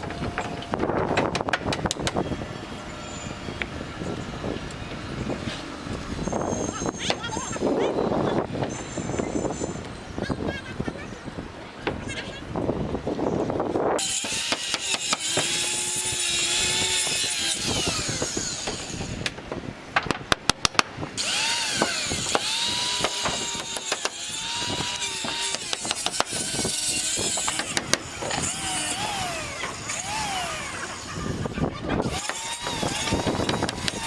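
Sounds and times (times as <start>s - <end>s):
power tool motor on wood: 14.0s - 19.3s, 21.2s - 34.0s.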